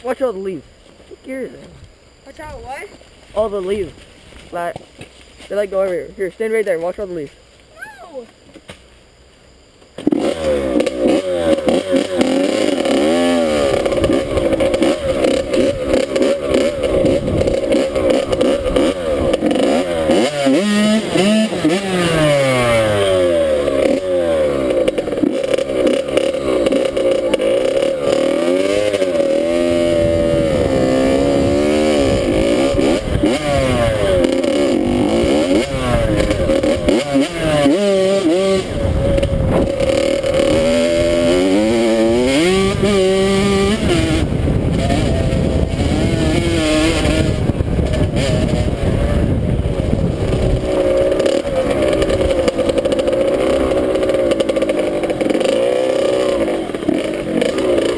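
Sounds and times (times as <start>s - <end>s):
dirt bike engine revving: 10.0s - 57.9s.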